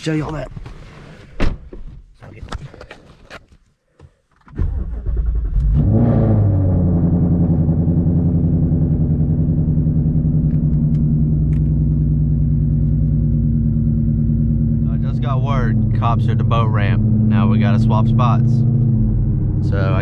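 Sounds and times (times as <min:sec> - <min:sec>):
engine starter cranking: 0:04.5 - 0:05.7
car engine revving and idling: 0:05.2 - 0:20.0.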